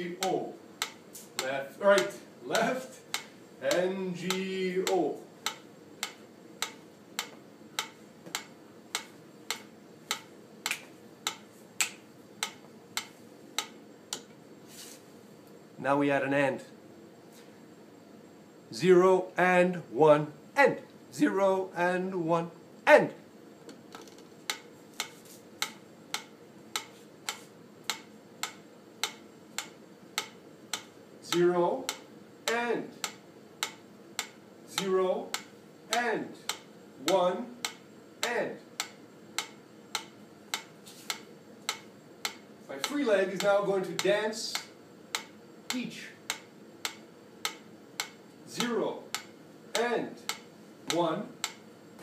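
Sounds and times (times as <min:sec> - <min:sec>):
metronome clicks ticking: 0:00.0 - 0:14.4, 0:24.5 - 0:51.7.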